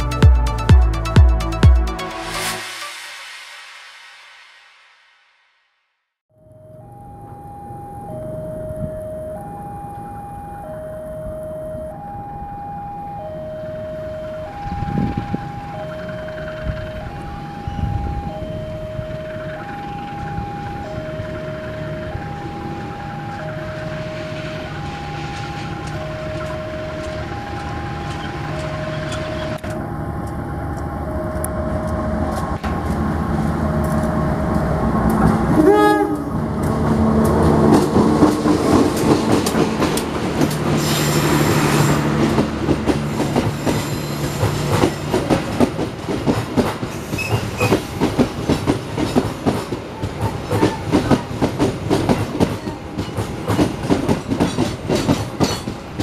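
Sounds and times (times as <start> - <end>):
two-tone crossing alarm: 6.3 - 32.6
locomotive engine running: 19.0 - 46.5
train horn blast: 33.6 - 37.7
wheels clicking over rail joints: 42.3 - 56.0.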